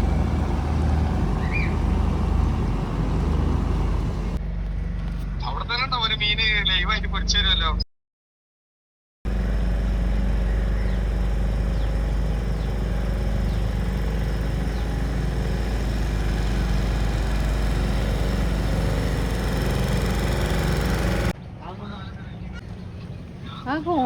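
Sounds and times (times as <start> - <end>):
boat engine running: 0.0 - 4.4, 9.3 - 21.4.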